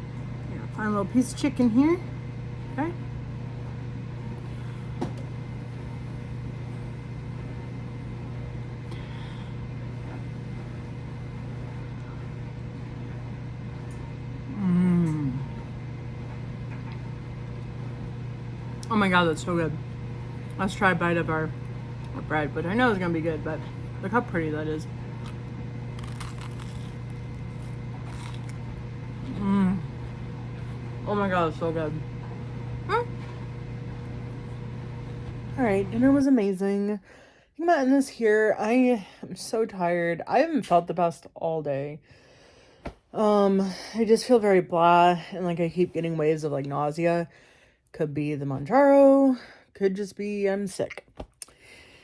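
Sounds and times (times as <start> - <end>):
low electrical hum: 0.0 - 52.0
woman humming mmm: 14.5 - 15.7, 29.2 - 30.1, 32.8 - 33.3
person chewing bread: 25.2 - 30.7.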